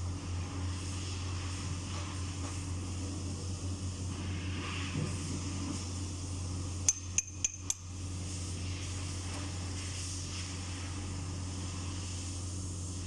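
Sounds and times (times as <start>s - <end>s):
steady low hum: 0.0s - 13.0s
hammer strikes on metal: 6.9s - 7.9s.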